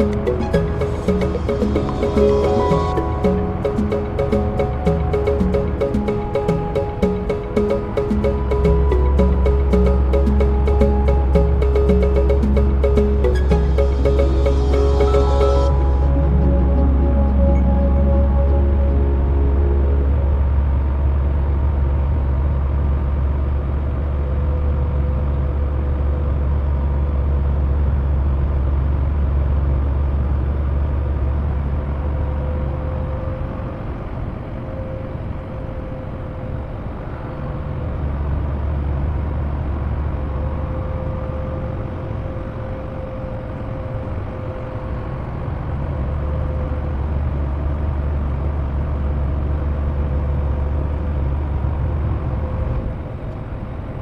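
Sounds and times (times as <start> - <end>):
faint whine: 0.0 - 22.7
truck engine drone: 0.0 - 34.2.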